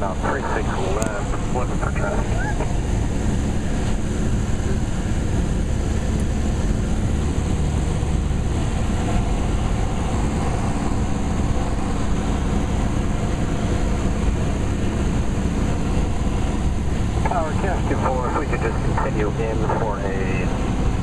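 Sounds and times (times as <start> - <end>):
airplane engine and propeller droning: 0.0 - 21.0.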